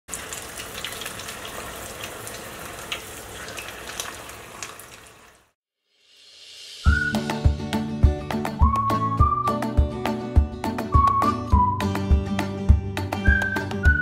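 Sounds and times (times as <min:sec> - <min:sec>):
deep-frying sizzle with pops: 0:00.1 - 0:06.4.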